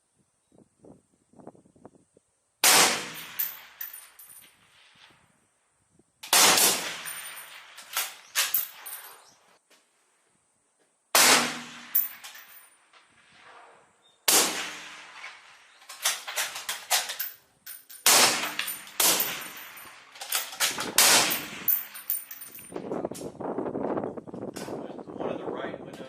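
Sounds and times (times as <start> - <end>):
gunshots: 2.6 - 3.8, 6.2 - 8.6, 11.2 - 12.4, 14.3 - 17.2, 18.0 - 22.0.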